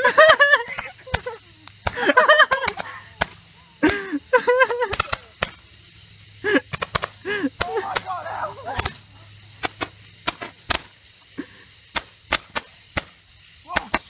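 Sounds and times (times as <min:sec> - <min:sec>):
firework cracks: 0:00.0 - 0:14.0
person shouting: 0:07.6 - 0:09.0, 0:13.6 - 0:14.0.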